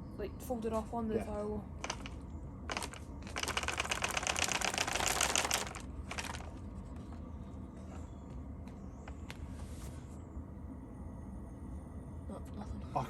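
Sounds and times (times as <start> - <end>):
mechanical clicking rattle: 1.8 - 6.6.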